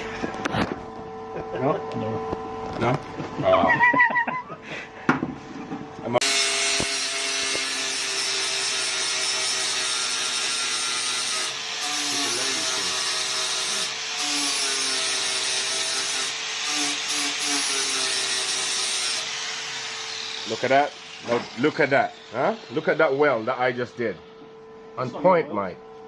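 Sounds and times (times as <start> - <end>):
angle grinder on steel: 6.2 - 24.2.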